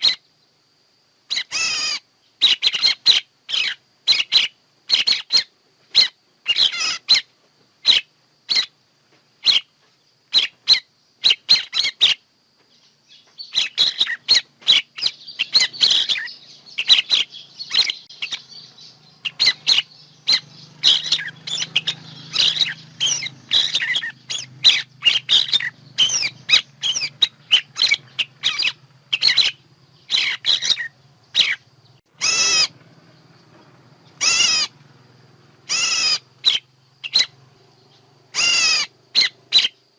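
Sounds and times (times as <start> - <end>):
bird calls high chirps: 0.0 - 0.5, 1.3 - 8.8, 9.4 - 39.9.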